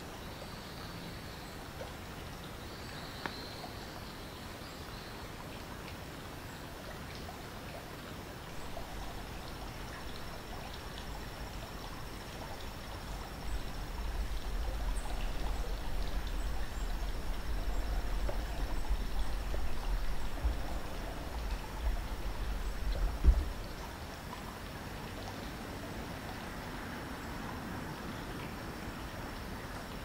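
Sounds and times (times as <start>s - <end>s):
light ticks: 2.9s - 3.5s
low rumble: 13.5s - 23.8s.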